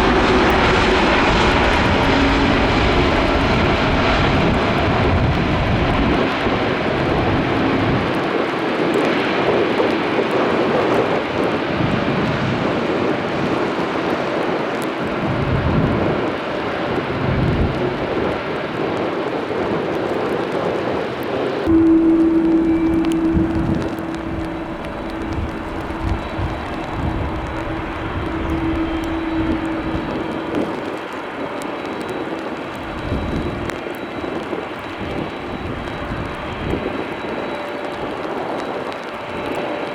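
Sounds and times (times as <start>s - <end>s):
airliner jet engines on runway: 0.0s - 22.4s, 25.0s - 39.9s
jet engine rumble: 21.7s - 38.2s.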